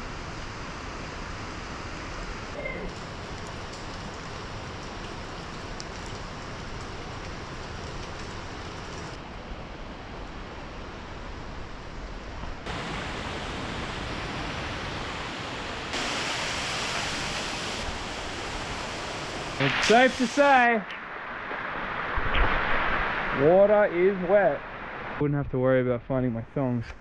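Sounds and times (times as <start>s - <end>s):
waterfall rushing: 12.7s - 25.2s.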